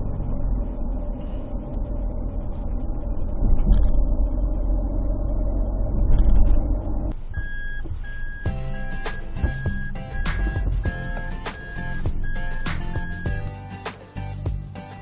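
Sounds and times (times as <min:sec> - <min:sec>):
vehicle rumble: 0:00.0 - 0:15.0.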